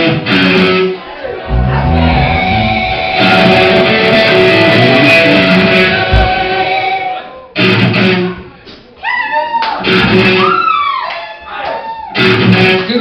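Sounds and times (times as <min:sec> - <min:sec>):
live rock band playing: 0:01.5 - 0:06.8.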